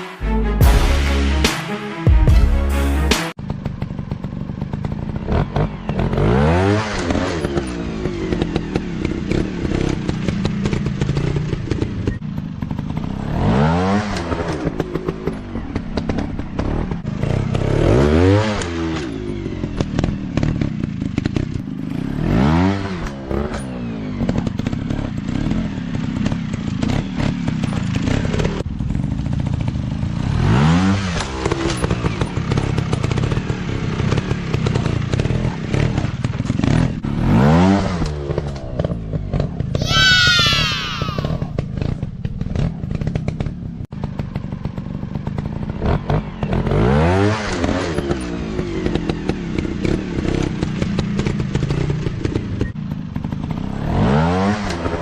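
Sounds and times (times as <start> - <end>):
dirt bike engine revving: 2.6 - 28.6, 30.2 - 43.1.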